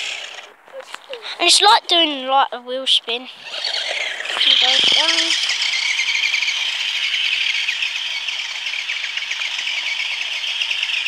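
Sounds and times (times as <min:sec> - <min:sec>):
toy car motor whining: 0:00.0 - 0:01.6, 0:03.3 - 0:11.0
rapid crackling flutter: 0:03.4 - 0:11.0.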